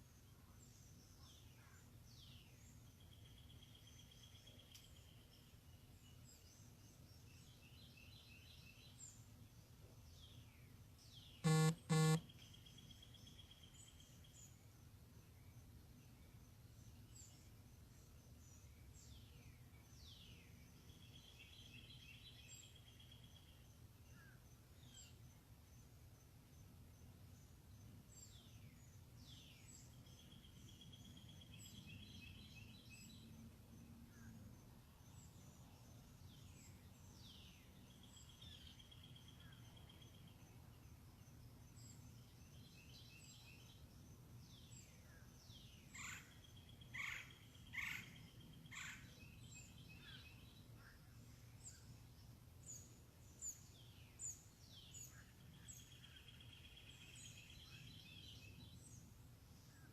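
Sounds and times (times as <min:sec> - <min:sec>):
faint steady low hum: 0:00.0 - 0:59.9
wild birds chirping: 0:18.3 - 0:59.9.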